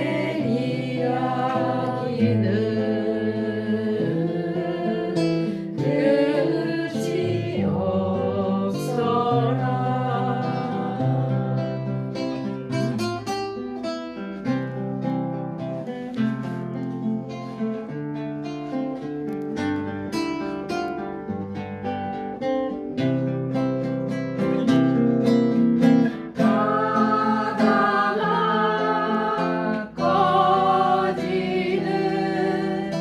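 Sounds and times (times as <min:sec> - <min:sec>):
woman singing: 0:00.0 - 0:11.9, 0:26.3 - 0:33.0
acoustic guitar strumming: 0:00.0 - 0:33.0.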